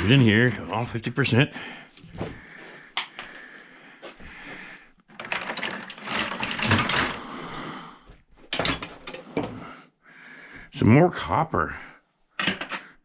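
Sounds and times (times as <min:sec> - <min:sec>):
metal scrap clinking and rattling: 0:05.1 - 0:07.2, 0:08.5 - 0:09.5, 0:12.4 - 0:12.9.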